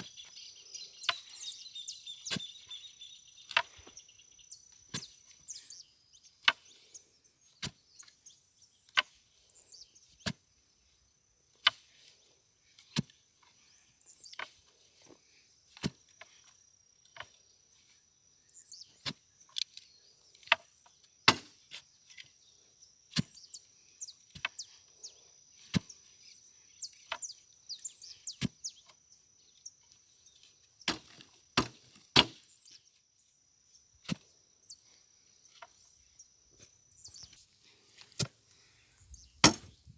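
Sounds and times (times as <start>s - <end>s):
bird chirps: 0.0s - 10.2s, 17.8s - 21.1s, 22.1s - 30.9s, 34.6s - 37.6s, 38.6s - 39.9s
digging tool striking hard ground: 21.3s - 21.7s, 30.9s - 32.5s, 38.1s - 38.4s, 39.4s - 39.9s.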